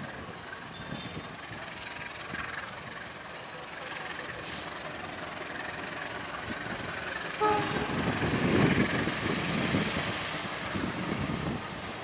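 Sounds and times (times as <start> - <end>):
locomotive engine and wheels rumbling: 0.0 - 12.0
locomotive horn toot: 7.4 - 8.1.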